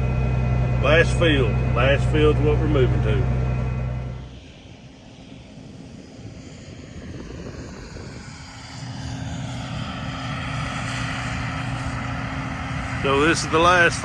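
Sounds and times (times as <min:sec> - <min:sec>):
vehicle engine revving up: 0:00.0 - 0:04.3.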